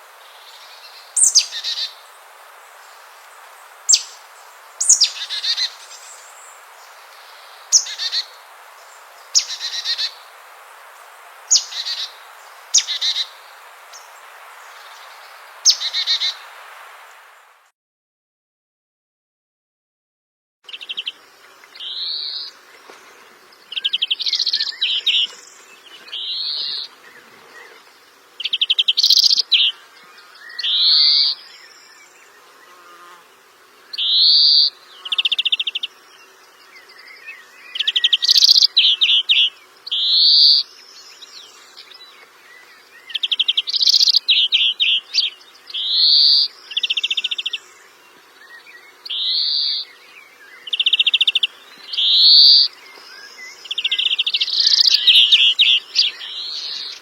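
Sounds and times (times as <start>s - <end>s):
bird singing whistles and trills: 1.2s - 1.8s, 3.9s - 4.2s, 4.8s - 5.6s, 37.0s - 40.6s, 50.6s - 57.0s.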